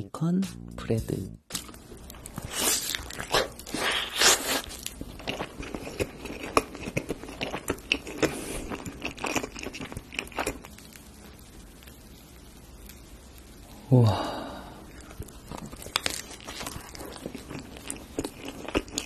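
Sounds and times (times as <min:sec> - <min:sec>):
person biting into bread: 0:02.5 - 0:10.1.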